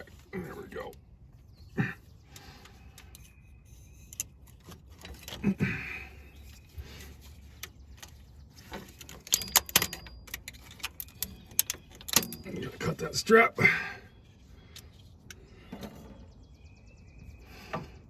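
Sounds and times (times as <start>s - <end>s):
metallic clatter: 6.4s - 12.9s.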